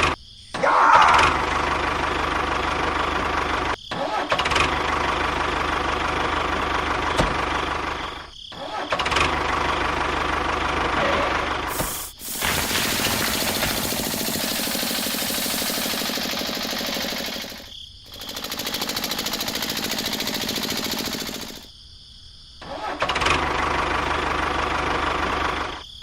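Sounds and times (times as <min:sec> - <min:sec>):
small motor running: 0:11.7 - 0:21.7.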